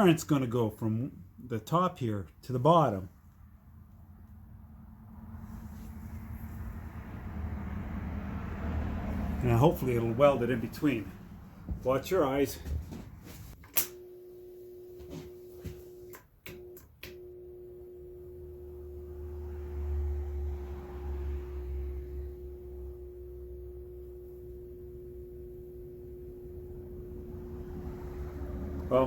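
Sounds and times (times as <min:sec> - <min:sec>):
transformer humming: 0:16.0 - 0:29.0.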